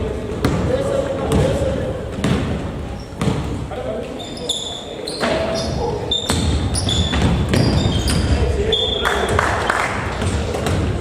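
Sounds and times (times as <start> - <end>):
basketball bouncing: 0.3 - 0.7, 1.3 - 2.6, 3.2 - 3.6, 6.3 - 8.4, 10.1 - 11.0
sneakers squeaking on floor: 0.3 - 11.0.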